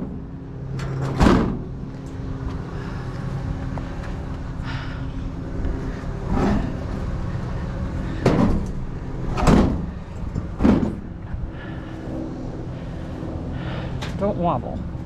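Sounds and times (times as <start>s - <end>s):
heavy item knocking truck bed: 9.3s - 9.9s, 10.6s - 11.1s.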